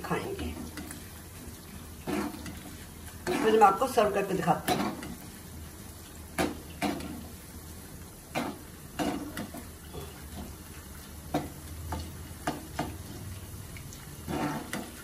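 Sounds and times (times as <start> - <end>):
corn frying in hot oil: 0.0 - 15.0
metal spoon scraping a pan: 2.0 - 3.8, 4.6 - 5.3, 8.3 - 10.5, 14.2 - 15.0.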